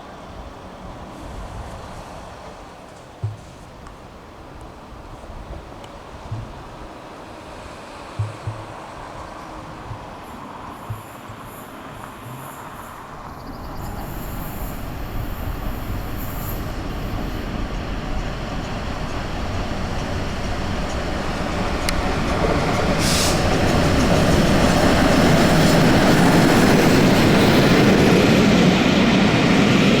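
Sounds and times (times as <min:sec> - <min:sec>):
train wheels rumbling on rail: 0:06.0 - 0:30.0.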